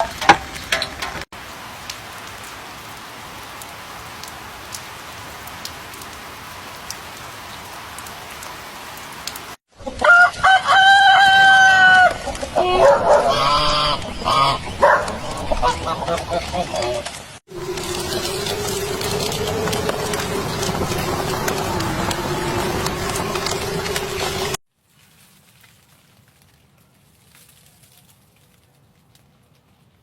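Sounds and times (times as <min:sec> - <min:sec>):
steady rain hiss: 0:01.3 - 0:09.6, 0:16.7 - 0:24.6
chicken calls: 0:09.8 - 0:24.6
rooster crowing: 0:10.0 - 0:14.7
water drips: 0:14.0 - 0:24.6.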